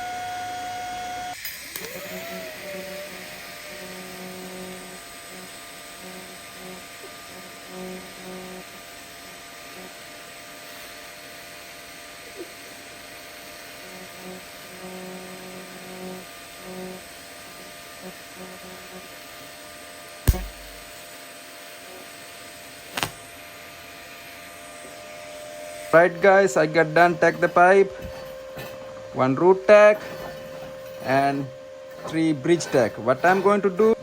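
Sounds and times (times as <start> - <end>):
welding arc buzz: 0.0 - 21.1, 21.8 - 34.0
welding machine electrical hum: 0.0 - 34.0
sharp clicks: 20.3 - 20.9.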